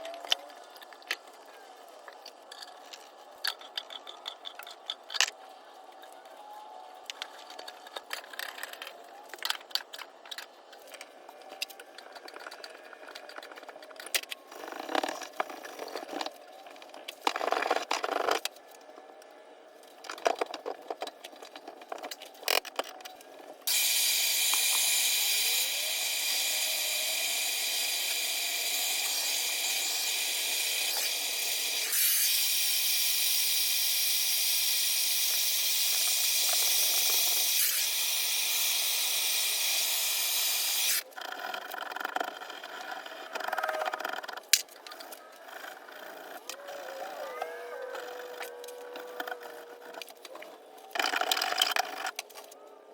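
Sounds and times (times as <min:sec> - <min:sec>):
loud steady hiss: 0:23.7 - 0:41.0.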